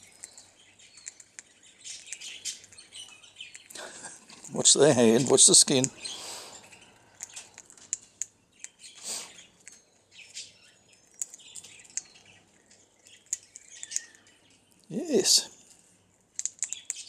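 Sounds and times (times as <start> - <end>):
parrot cracking seeds: 0.0 - 14.9, 15.7 - 17.0
faint bird chirps: 5.8 - 15.7.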